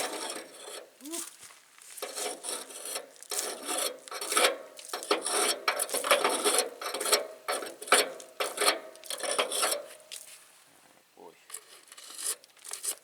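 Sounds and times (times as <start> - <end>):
metal scraping and rubbing: 0.0 - 1.0, 2.0 - 10.0, 11.5 - 13.0.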